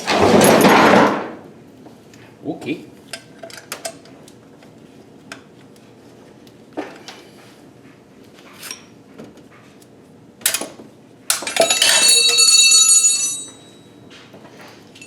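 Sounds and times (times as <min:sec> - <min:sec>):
metal object ringing like a bell: 0:11.6 - 0:14.0.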